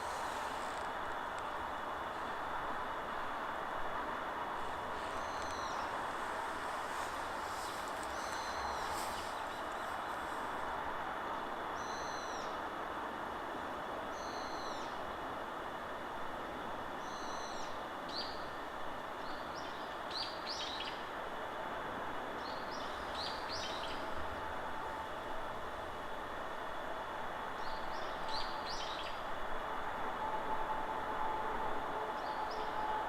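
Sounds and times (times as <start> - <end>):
wind in forest trees: 0.0 - 33.0
small songbirds calling: 5.0 - 6.2, 6.9 - 10.1, 22.4 - 24.1.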